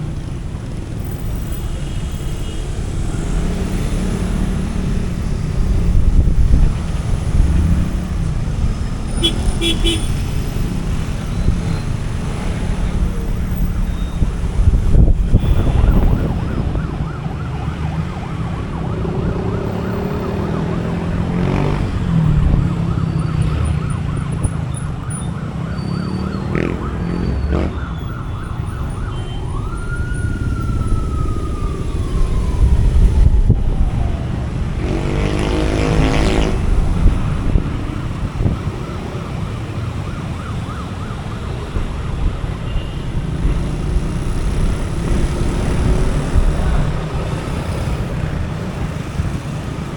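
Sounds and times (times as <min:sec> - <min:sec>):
road noise: 0:00.0 - 0:49.9
siren wail: 0:01.0 - 0:49.9
motorcycle engine: 0:01.9 - 0:13.2
horn honk: 0:09.1 - 0:10.4, 0:15.3 - 0:16.2.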